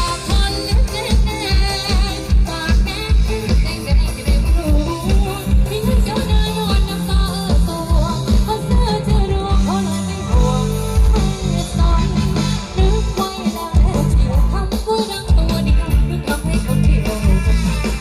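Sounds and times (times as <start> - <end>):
band music over loudspeakers: 0.0 - 18.0
person singing: 0.0 - 18.0.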